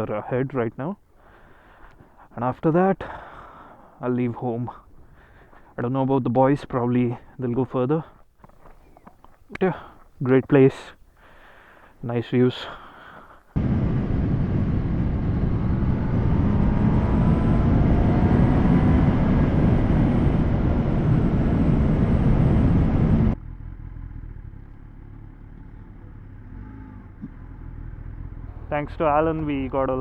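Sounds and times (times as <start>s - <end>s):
heavy wind rush: 13.6s - 23.4s
low rumble: 13.6s - 30.0s
motorcycle engine: 13.6s - 30.0s.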